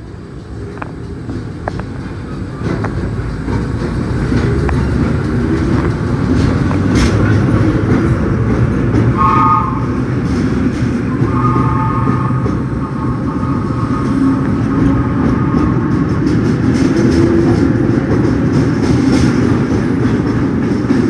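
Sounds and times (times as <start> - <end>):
subway train rumbling: 0.0 - 21.0
train horn: 9.1 - 10.3, 11.1 - 16.4.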